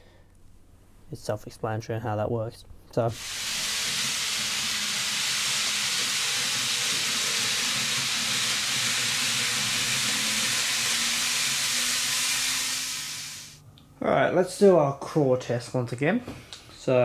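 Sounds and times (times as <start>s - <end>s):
model train wheels hissing on rail: 3.2s - 13.6s.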